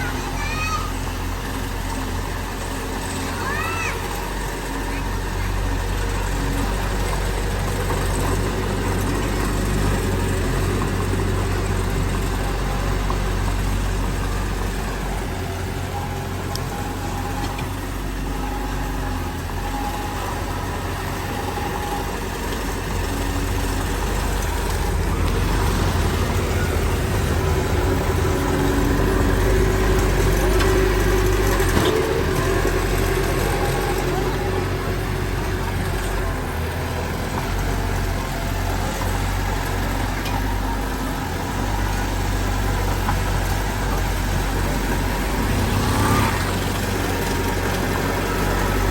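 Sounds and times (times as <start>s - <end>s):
diesel machinery rumbling: 0.0s - 48.9s.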